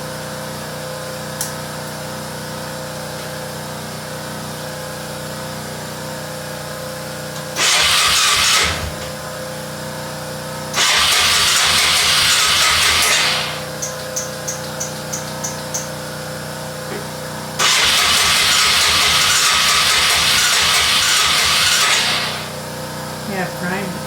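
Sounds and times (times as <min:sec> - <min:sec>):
engine electric starter cranking: 0:07.4 - 0:09.5, 0:10.7 - 0:16.0, 0:17.6 - 0:22.8.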